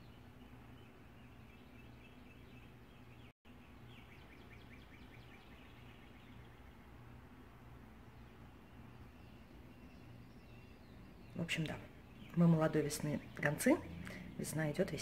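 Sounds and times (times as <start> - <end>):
bird trill: 0.0 - 6.8
songbirds chirping: 0.0 - 15.0.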